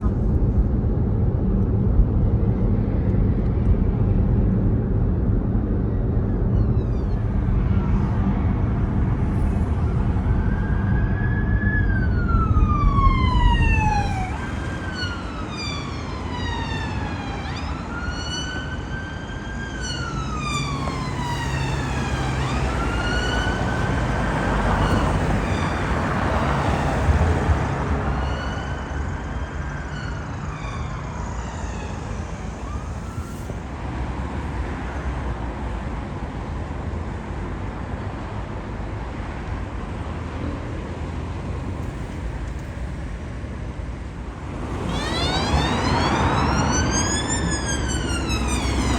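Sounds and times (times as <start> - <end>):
low vehicle rumble: 0.0 - 36.7, 38.7 - 48.9
emergency vehicle siren wailing: 5.7 - 33.6, 44.0 - 48.9.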